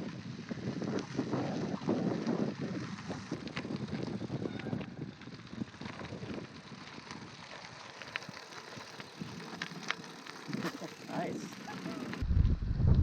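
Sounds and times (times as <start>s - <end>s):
wind noise on microphone: 0.0s - 7.6s, 12.0s - 13.0s
bicycle tyres rolling: 0.0s - 13.0s
small clicks and rattles: 3.3s - 12.2s.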